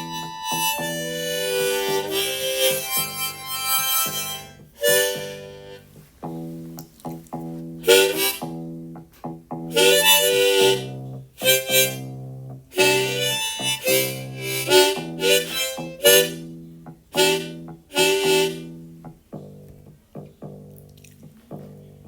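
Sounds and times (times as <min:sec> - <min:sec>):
harmonica melody: 0:00.0 - 0:19.8
guitar accompaniment: 0:00.0 - 0:22.0.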